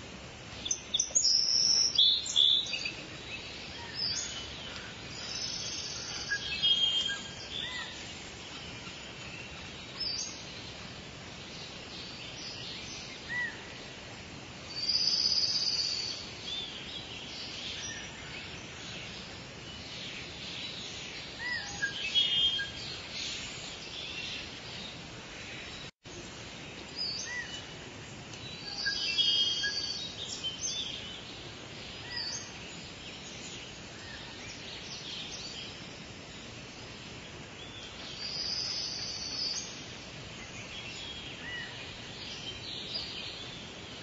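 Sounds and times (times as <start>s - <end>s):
outdoor background hiss: 0.0s - 44.0s
birds chirping and whistling: 0.6s - 10.5s, 20.5s - 24.5s, 28.4s - 31.3s.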